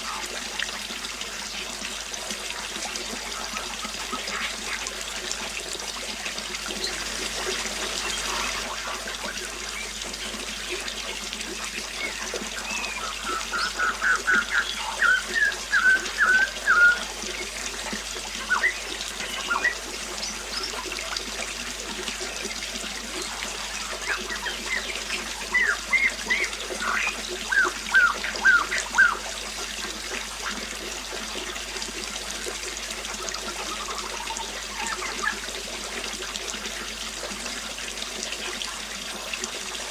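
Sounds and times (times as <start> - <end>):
water trickling: 0.0 - 39.9
songbird chirping: 11.9 - 20.8.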